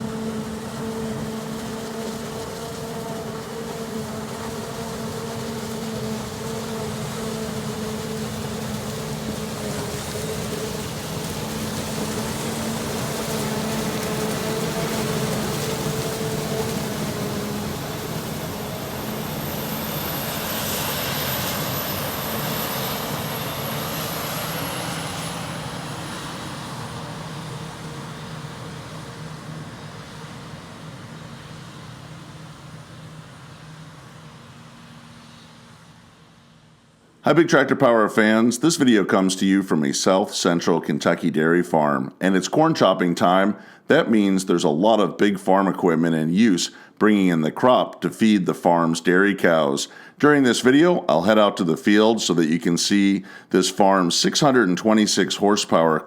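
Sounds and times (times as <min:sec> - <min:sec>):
diesel machinery engine hum: 0:00.0 - 0:37.3.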